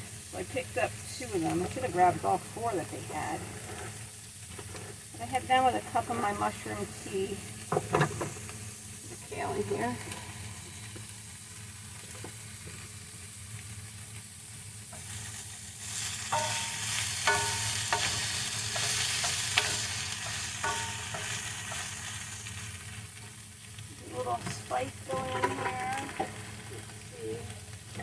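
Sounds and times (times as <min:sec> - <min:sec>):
vegetables sizzling in a frying pan: 0:00.0 - 0:28.0
steady low hum: 0:05.1 - 0:28.0
utensil scraping and clinking a pan: 0:14.9 - 0:23.0, 0:24.2 - 0:26.8.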